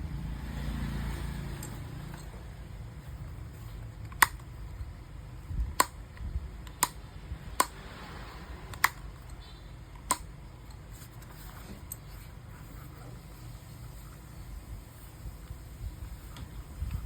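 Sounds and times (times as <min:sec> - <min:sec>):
sharp clicks: 0:03.9 - 0:04.8, 0:05.5 - 0:08.0, 0:08.7 - 0:11.3.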